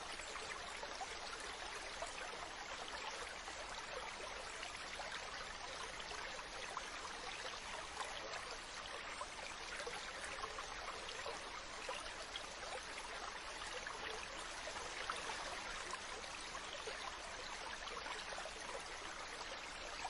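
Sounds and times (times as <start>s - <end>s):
stream running over rocks: 0.0s - 20.0s.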